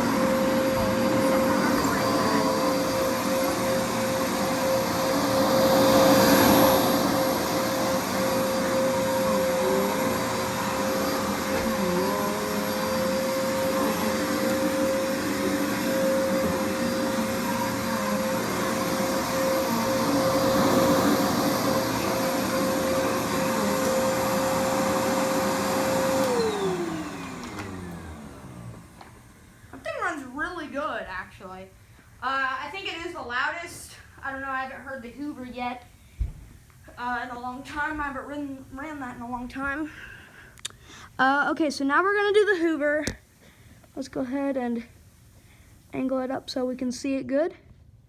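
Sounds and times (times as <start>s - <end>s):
vacuum motor spinning down: 0.0s - 29.5s
vacuum cleaner motor whine: 0.0s - 31.2s.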